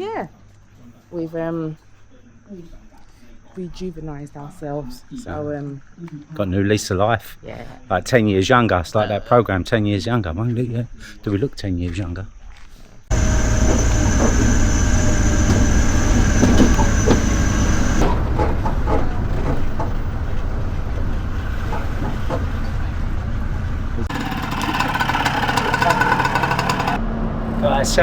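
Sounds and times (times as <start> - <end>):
road or water noise: 13.1 - 28.0
vehicle engine rumbling: 13.1 - 28.0.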